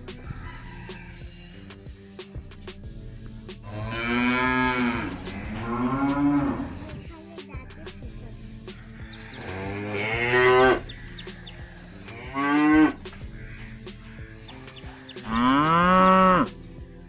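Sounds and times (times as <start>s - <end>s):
cattle mooing: 3.7s - 7.0s, 9.2s - 10.9s, 12.1s - 14.6s, 15.2s - 16.5s.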